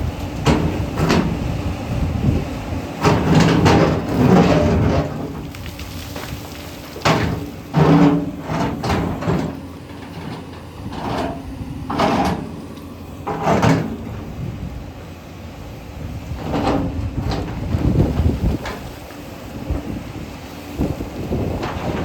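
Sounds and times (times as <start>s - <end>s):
excavator engine under load: 0.0s - 22.0s
bucket scraping against stone: 3.1s - 12.6s.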